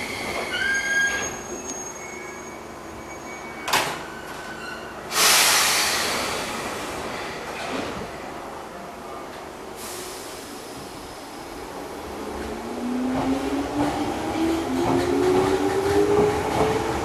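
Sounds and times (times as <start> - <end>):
train squealing to a stop: 0.0 - 7.4.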